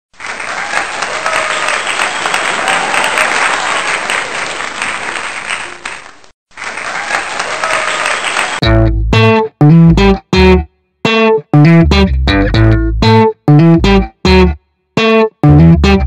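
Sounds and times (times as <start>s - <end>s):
crowd applause: 0.1s - 8.6s.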